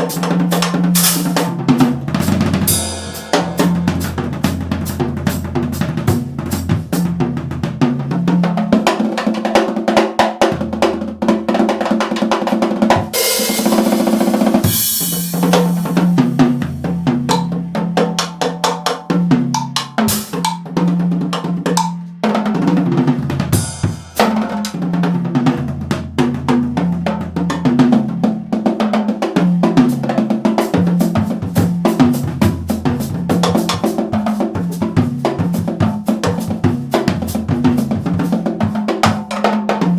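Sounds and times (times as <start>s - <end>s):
backing track with bass line: 0.0s - 8.2s
drum kit groove: 0.0s - 39.9s
cymbals crashing: 2.7s - 4.2s, 13.2s - 16.3s.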